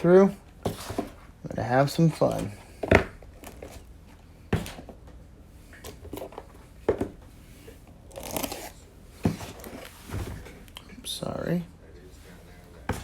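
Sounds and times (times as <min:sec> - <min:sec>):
cardboard boxes knocking on table: 0:06.8 - 0:07.2.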